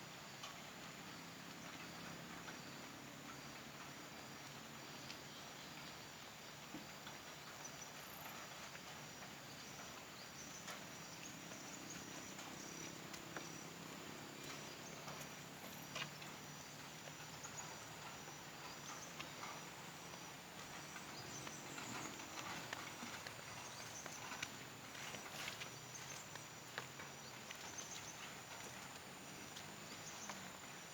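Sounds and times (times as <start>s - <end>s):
soft outdoor hiss: 0.0s - 30.9s
light ticks and taps: 6.6s - 30.8s.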